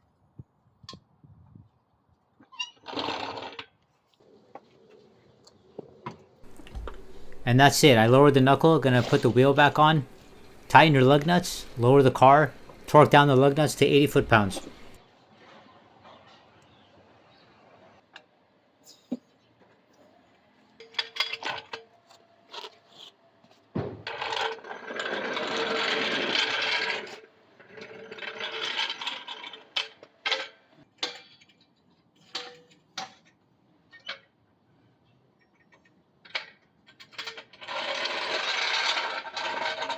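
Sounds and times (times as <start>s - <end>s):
metal clinks and knocks: 6.4s - 13.2s
tool working lug nuts: 6.4s - 15.0s.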